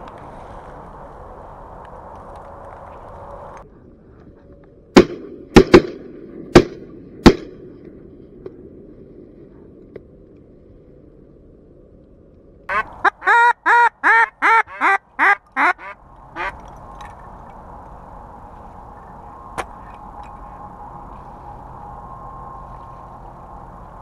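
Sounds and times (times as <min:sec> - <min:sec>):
steady hum: 0:00.0 - 0:24.0
loud duck quacks: 0:12.7 - 0:16.6.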